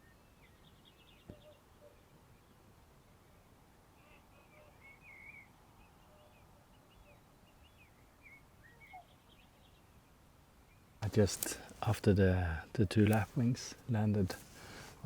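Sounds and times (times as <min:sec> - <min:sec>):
faint bird chirps and whistles: 0:00.0 - 0:02.5, 0:04.0 - 0:09.9.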